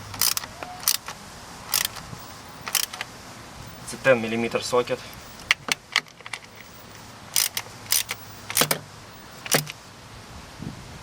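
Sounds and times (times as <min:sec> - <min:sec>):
socket wrench clicking: 0:00.1 - 0:02.0, 0:02.6 - 0:03.1, 0:07.3 - 0:08.8, 0:09.4 - 0:09.8.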